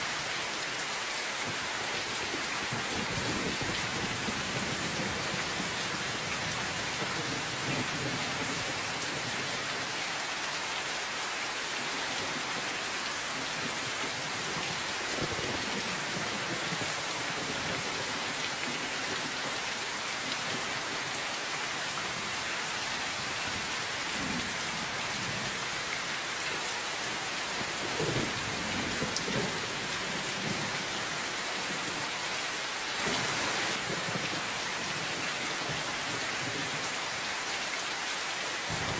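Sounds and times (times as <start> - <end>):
steady rain hiss: 0.0 - 38.9
thunder rumbling: 38.7 - 38.9.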